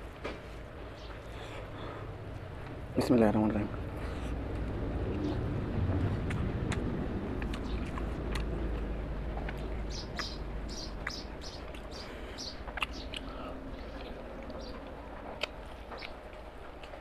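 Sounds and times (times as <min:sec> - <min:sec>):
low steady hum: 0:00.0 - 0:17.0
wet chewing and lip-smacking: 0:04.1 - 0:17.0.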